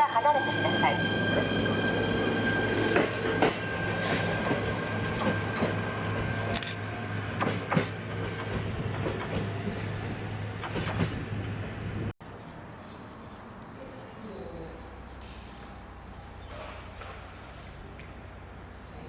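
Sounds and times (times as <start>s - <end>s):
wheels clacking over rail joints: 2.8s - 11.6s.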